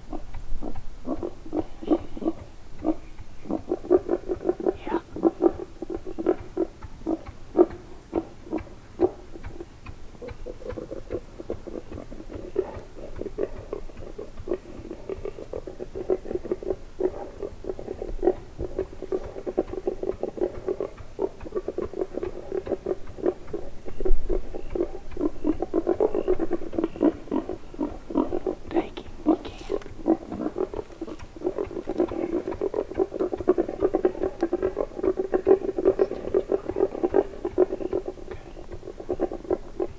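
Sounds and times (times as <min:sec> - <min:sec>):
wild boar grunting: 0:00.0 - 0:39.9.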